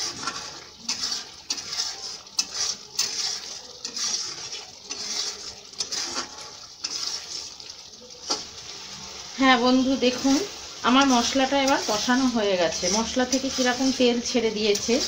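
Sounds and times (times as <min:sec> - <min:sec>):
spatula scraping and knocking pan: 0:00.0 - 0:08.6, 0:09.8 - 0:15.0
spice paste sizzling in oil: 0:00.0 - 0:15.0.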